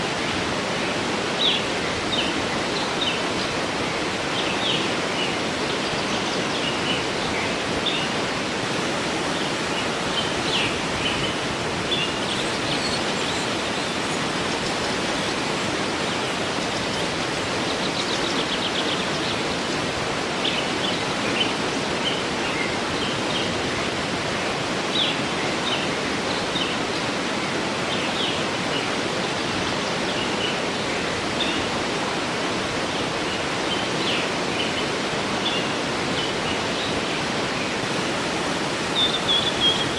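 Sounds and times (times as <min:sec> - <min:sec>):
waterfall rushing: 0:00.0 - 0:39.9
small birds chirping: 0:09.4 - 0:22.7, 0:39.0 - 0:39.9.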